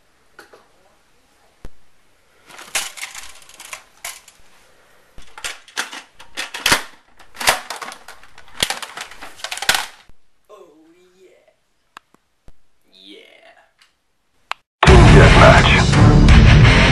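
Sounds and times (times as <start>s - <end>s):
plastic toy blasters clattering: 2.5s - 4.4s, 5.2s - 10.1s.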